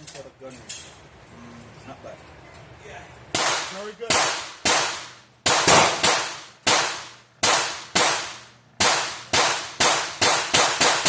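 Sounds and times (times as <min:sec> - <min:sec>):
gunshots: 0:03.4 - 0:11.0.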